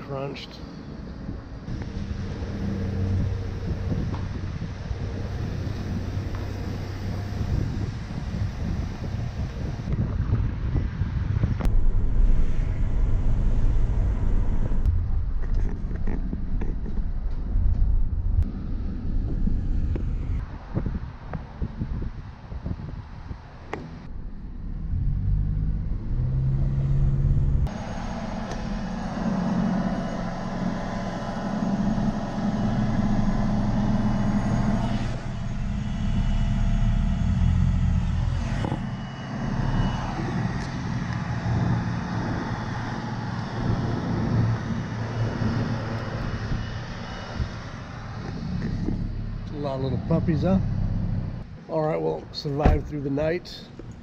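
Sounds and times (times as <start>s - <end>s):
road noise: 0.0s - 54.0s
vehicle engine hum: 0.0s - 54.0s.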